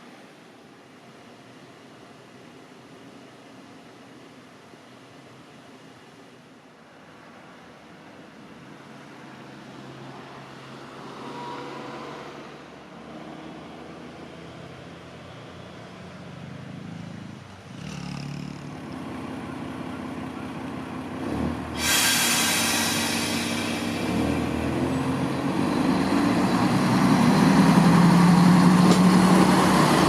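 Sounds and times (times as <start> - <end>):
diesel railcar engine hum: 0.0 - 30.0
rush of train noise: 20.7 - 30.0.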